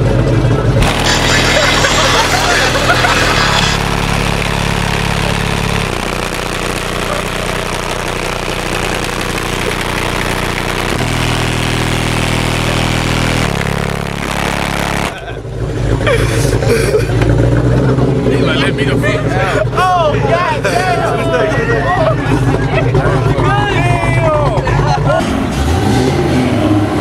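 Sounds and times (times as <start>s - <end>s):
car engine at steady revs: 0.0s - 23.5s, 24.4s - 27.0s
voices: 0.3s - 11.0s, 18.2s - 25.4s
broad rushing noise: 0.8s - 15.4s.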